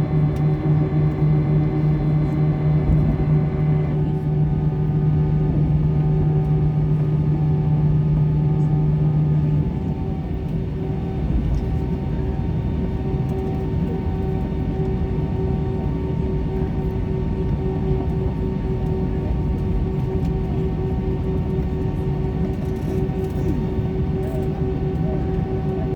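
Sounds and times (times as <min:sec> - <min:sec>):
deep hum: 0:00.0 - 0:11.6
airliner low rumble: 0:00.0 - 0:25.9
constant hums: 0:00.0 - 0:25.9.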